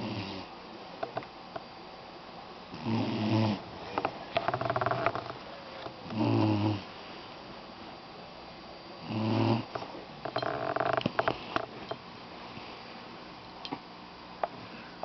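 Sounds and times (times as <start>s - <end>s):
puppy snoring: 0.0s - 0.5s, 2.7s - 5.4s, 6.0s - 6.9s, 9.0s - 11.7s.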